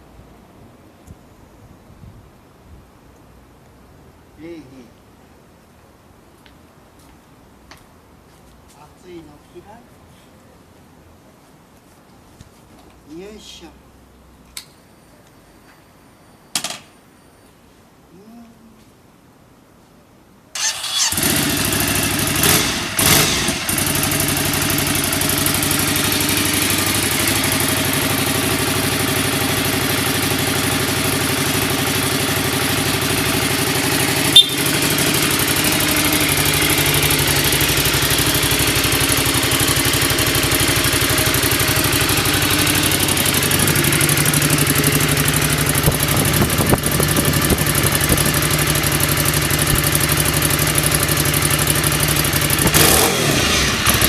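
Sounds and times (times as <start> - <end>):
motorcycle engine revving: 20.6 - 54.0
motorcycle engine idling: 21.2 - 54.0.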